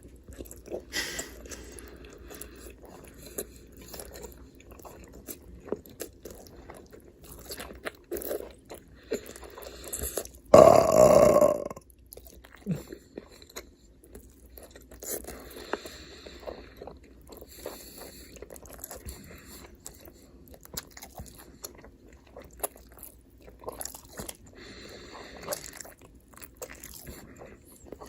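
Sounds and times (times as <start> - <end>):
chewing and crunching: 0.0 - 28.0
loud burp: 10.5 - 11.8.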